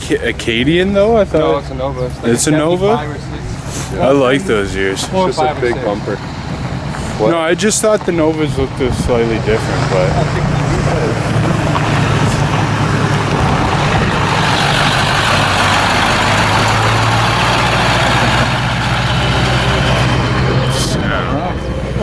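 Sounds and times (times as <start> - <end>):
car engine humming: 0.0 - 22.0
rushing sound: 5.9 - 22.0.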